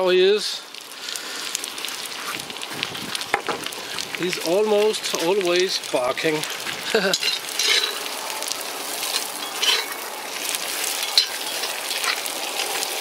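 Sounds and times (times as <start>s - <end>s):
vegetables sizzling in a pot: 0.0s - 13.0s
metal spatula scraping a pot: 7.2s - 8.1s, 9.0s - 10.0s.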